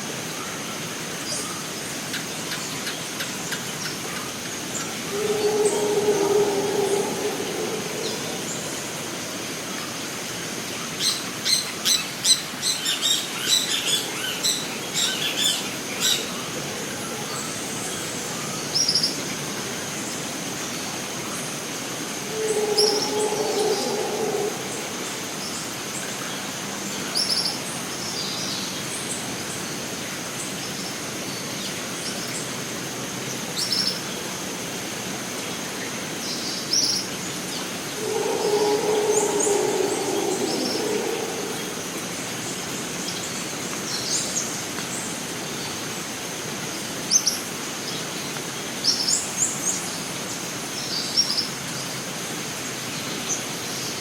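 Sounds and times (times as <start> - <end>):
steady hiss: 3.5 - 11.2, 20.4 - 26.2, 37.5 - 43.6
lower bird call: 4.8 - 9.7, 22.0 - 25.7, 37.8 - 42.5
birds calling: 4.9 - 9.2, 22.2 - 25.4, 37.9 - 42.3
constant high tone: 4.9 - 9.7, 22.1 - 25.5, 37.8 - 42.5.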